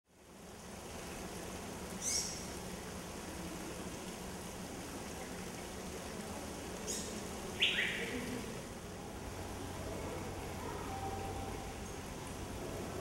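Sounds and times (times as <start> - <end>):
steady hiss: 0.1 - 13.0
bird chirps: 6.9 - 8.1.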